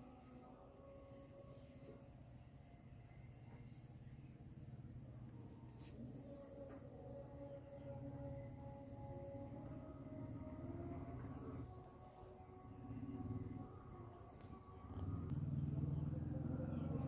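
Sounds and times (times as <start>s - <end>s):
crickets trilling: 0.0s - 17.0s
low background rumble: 12.4s - 17.0s.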